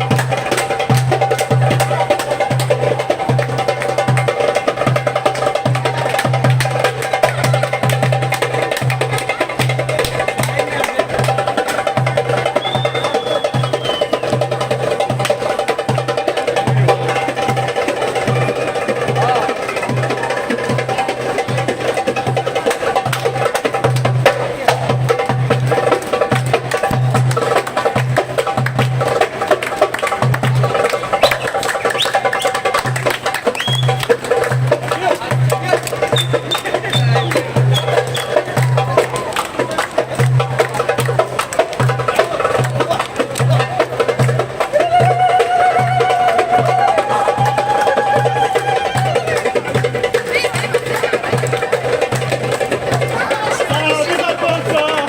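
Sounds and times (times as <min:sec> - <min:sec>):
fast drum rhythm: 0:00.0 - 0:55.0
high whistle-like tone: 0:12.6 - 0:14.3, 0:31.2 - 0:32.6, 0:33.6 - 0:34.0.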